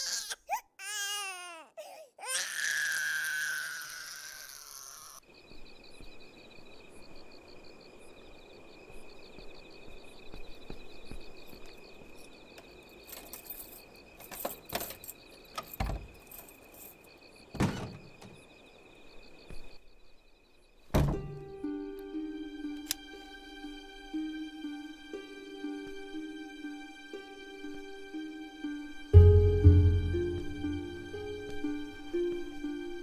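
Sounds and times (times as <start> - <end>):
baby crying: 0.0 - 5.2
crickets chirping: 0.0 - 33.0
loud thump: 20.9 - 21.4.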